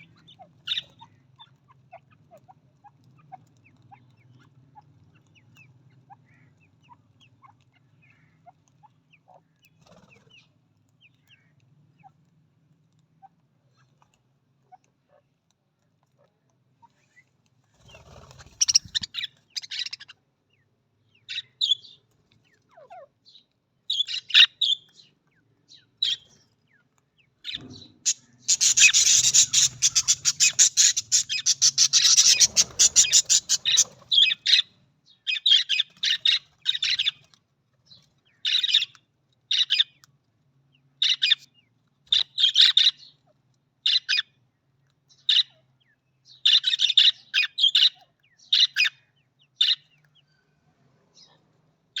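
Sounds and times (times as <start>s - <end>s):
budgerigars chirping: 0.0s - 12.2s, 17.8s - 25.1s, 25.7s - 37.3s, 38.2s - 40.0s, 41.0s - 43.1s, 43.9s - 44.3s, 45.2s - 45.6s, 46.3s - 50.0s.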